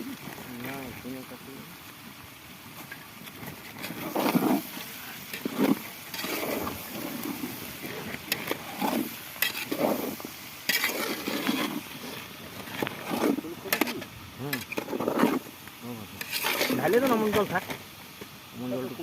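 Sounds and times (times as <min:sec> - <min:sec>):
utensil scraping metal pot: 0:02.9 - 0:17.8.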